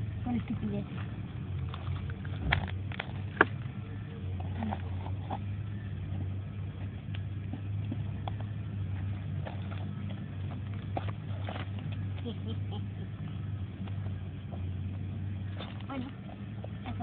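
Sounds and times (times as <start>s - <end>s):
campfire crackling: 0.0s - 17.0s
steady low hum: 0.0s - 17.0s.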